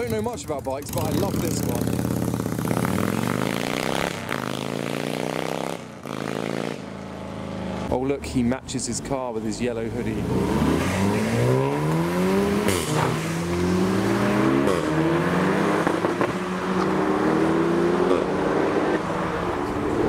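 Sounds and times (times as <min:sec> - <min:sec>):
car engine accelerating hard: 0:09.9 - 0:20.0.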